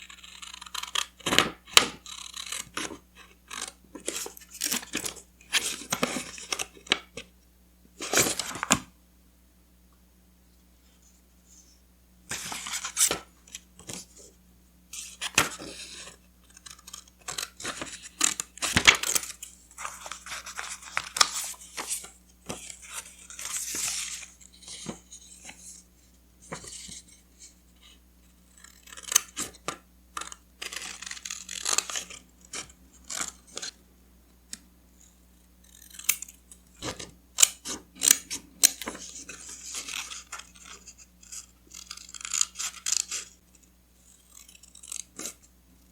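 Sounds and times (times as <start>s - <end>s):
paper rustling and crinkling: 15.0s - 25.8s.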